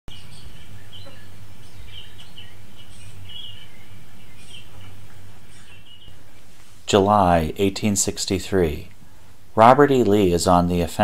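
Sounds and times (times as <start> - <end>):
small birds chirping: 0.1 - 8.0.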